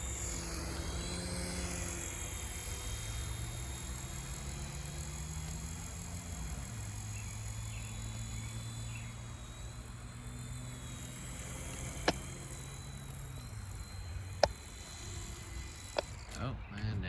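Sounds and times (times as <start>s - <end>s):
toy helicopter rotor hum: 0.0s - 17.0s
sharp click: 11.6s - 13.5s.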